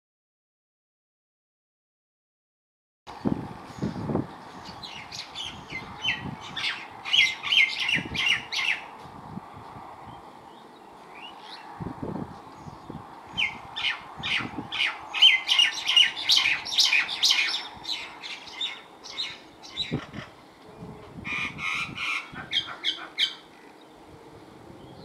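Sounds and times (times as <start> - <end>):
birds chirping and squawking: 3.7 - 8.9, 12.4 - 24.0.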